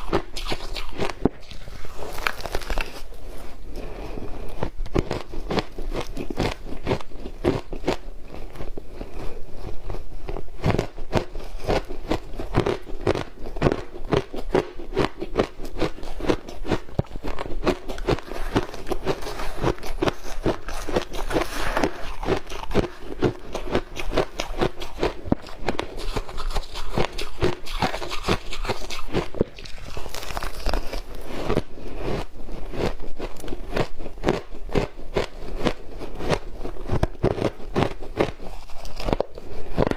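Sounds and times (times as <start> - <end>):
ice being crunched: 0.4 - 3.2, 28.0 - 31.6.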